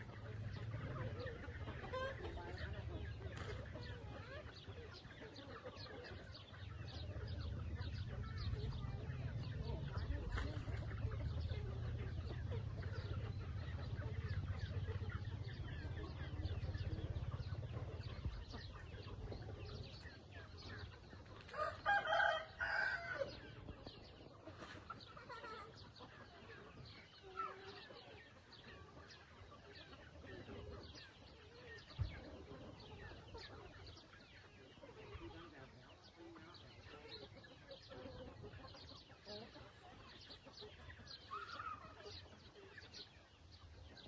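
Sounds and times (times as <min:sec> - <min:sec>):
chickens clucking: 0:00.0 - 0:44.0
rooster crowing: 0:21.6 - 0:23.4.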